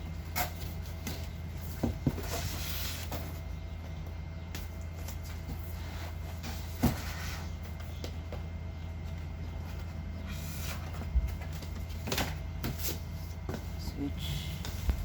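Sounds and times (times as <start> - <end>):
equipment and packaging handling: 0.0 - 3.9
steady low hum: 0.0 - 15.0.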